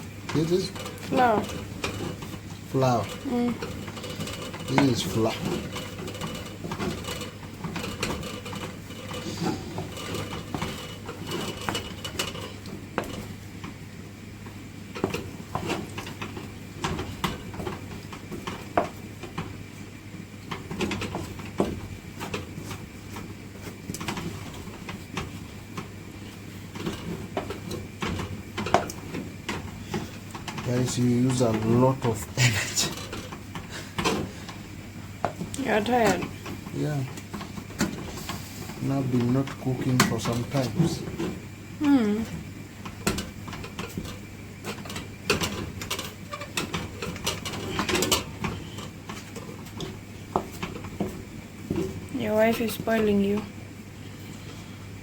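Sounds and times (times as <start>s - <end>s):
stirrer scraping a pot: 0.0s - 13.4s
steady low hum: 0.0s - 55.0s.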